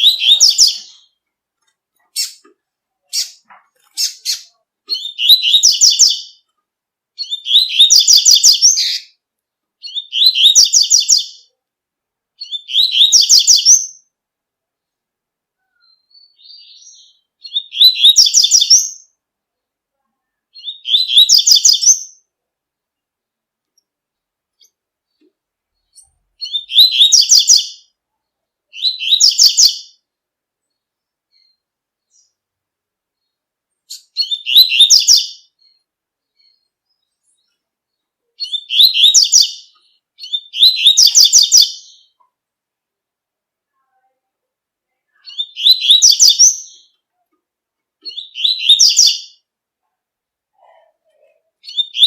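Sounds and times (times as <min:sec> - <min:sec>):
bird singing high repeated notes: 0:00.0 - 0:01.2, 0:04.0 - 0:06.4, 0:07.2 - 0:09.2, 0:12.4 - 0:14.1, 0:20.5 - 0:22.2, 0:25.8 - 0:28.0, 0:28.7 - 0:30.0, 0:33.9 - 0:35.8, 0:38.4 - 0:42.2, 0:45.3 - 0:47.0, 0:48.1 - 0:49.5.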